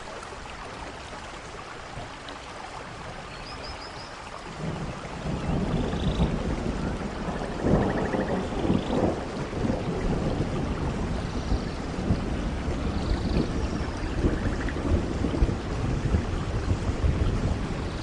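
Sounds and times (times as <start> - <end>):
heavy rain: 0.0 - 18.0
thunder rumbling: 4.5 - 18.0.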